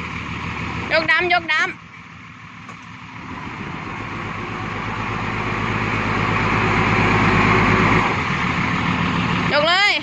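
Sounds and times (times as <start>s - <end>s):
diesel engine revving hard: 3.1s - 10.0s.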